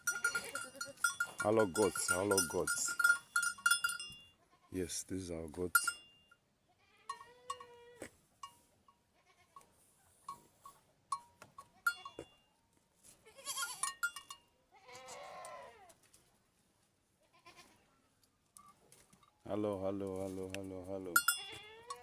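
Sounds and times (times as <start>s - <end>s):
goats bleating: 0.0s - 3.0s, 13.2s - 13.9s, 14.8s - 15.9s, 21.2s - 22.0s
small clinks and knocks: 0.0s - 4.3s, 21.2s - 22.0s.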